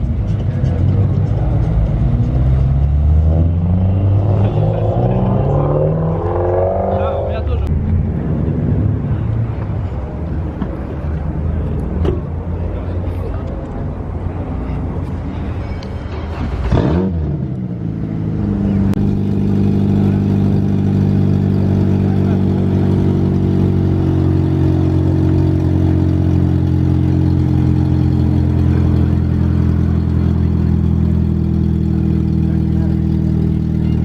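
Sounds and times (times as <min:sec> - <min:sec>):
car engine running: 0:15.4 - 0:34.0.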